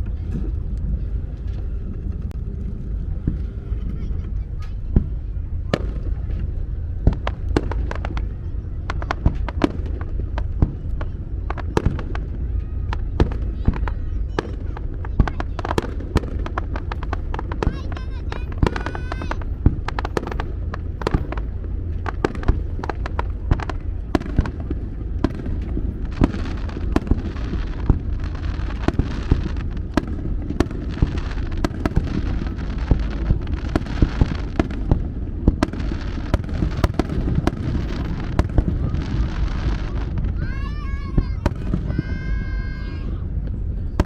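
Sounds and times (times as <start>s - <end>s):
hissing crackle: 0.0s - 43.7s
fireworks bangs: 0.0s - 44.0s
low rumble: 0.0s - 44.0s.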